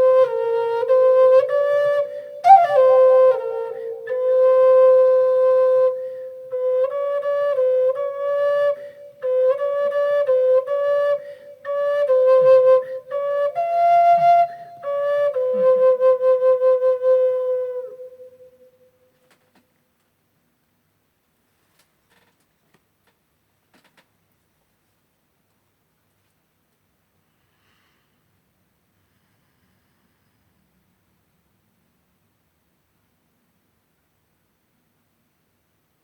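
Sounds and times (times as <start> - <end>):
solo wind instrument melody: 0.0 - 18.8.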